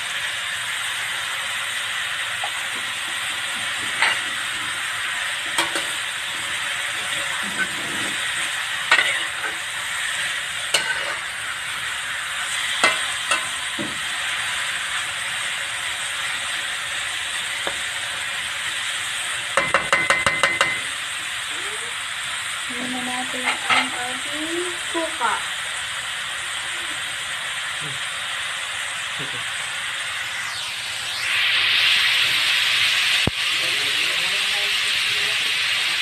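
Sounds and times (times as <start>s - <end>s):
food frying in a wok: 0.0s - 36.0s
spatula scraping a pan: 3.6s - 4.8s, 5.5s - 11.4s.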